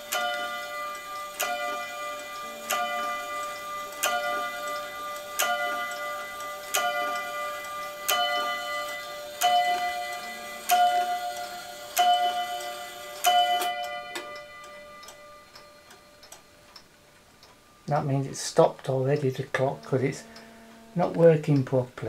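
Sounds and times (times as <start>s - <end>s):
wall clock striking a bell: 0.0s - 21.9s.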